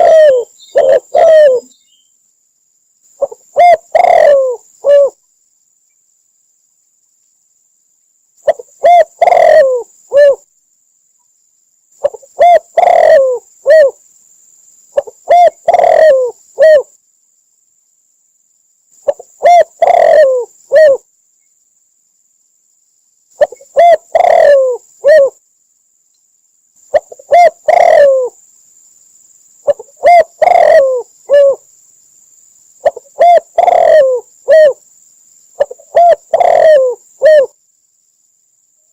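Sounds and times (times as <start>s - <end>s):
dove cooing: 0.0s - 1.8s, 3.2s - 5.2s, 8.4s - 10.4s, 12.0s - 14.0s, 15.0s - 16.9s, 19.0s - 21.1s, 23.4s - 25.4s, 26.9s - 28.4s, 29.6s - 31.6s, 32.8s - 34.8s, 35.6s - 37.6s.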